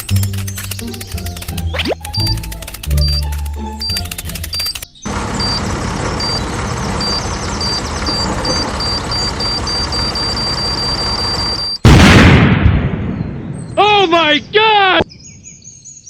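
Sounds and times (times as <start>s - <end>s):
short high beeps: 1.8s - 4.8s, 7.0s - 11.8s.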